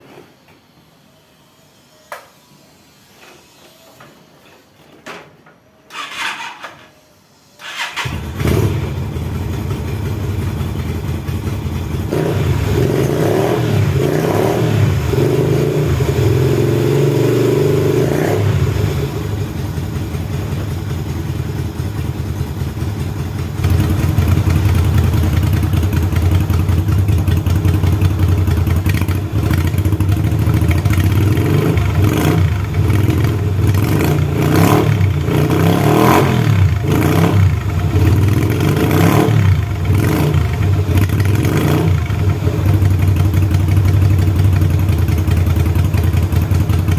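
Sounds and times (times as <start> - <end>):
motorcycle engine idling: 8.0 - 13.0, 18.8 - 34.4, 39.5 - 46.9.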